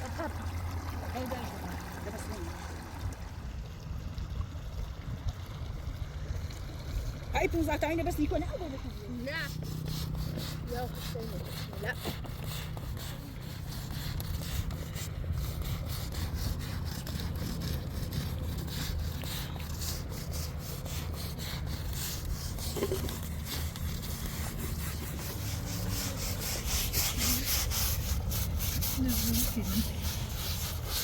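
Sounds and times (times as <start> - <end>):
hand scrubbing washing: 6.5 - 31.0.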